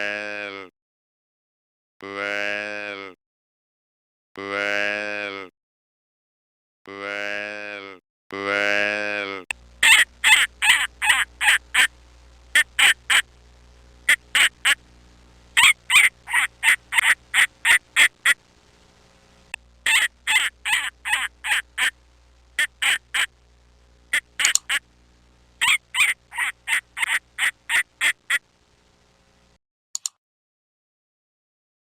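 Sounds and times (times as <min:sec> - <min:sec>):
duck quacking: 0:09.8 - 0:11.9, 0:12.5 - 0:13.3, 0:14.1 - 0:14.8, 0:15.6 - 0:18.4, 0:19.8 - 0:22.0, 0:22.6 - 0:23.3, 0:24.1 - 0:24.8, 0:25.6 - 0:28.4.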